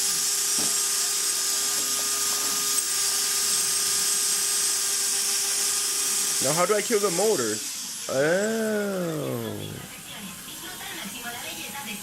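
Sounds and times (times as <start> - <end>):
drone motors whining: 7.8 - 10.1.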